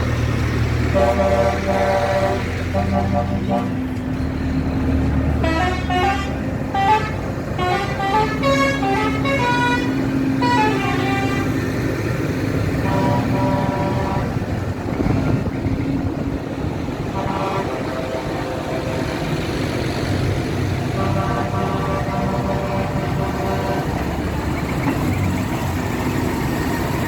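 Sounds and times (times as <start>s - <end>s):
engines running steadily: 0.0s - 27.0s
vehicle horns tooting: 0.9s - 3.8s, 5.3s - 11.6s, 12.8s - 14.4s, 17.1s - 19.3s, 20.9s - 24.1s.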